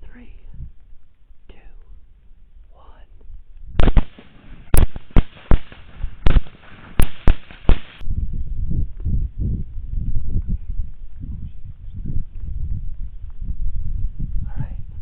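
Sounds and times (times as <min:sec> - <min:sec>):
low rumble: 0:00.0 - 0:15.0
gunshots: 0:03.8 - 0:08.0.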